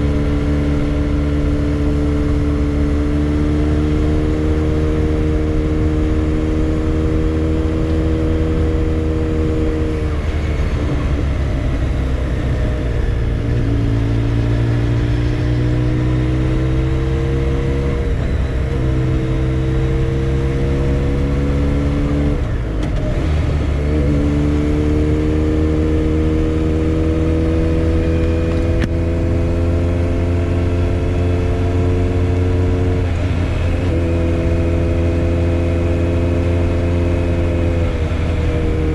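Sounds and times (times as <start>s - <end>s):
motorcycle engine shifting gears: 0.0s - 38.9s.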